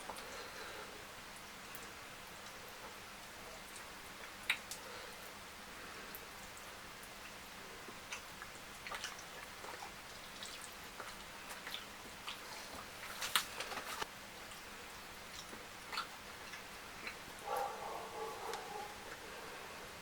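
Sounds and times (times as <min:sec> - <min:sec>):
wet chewing: 0:07.9 - 0:19.4.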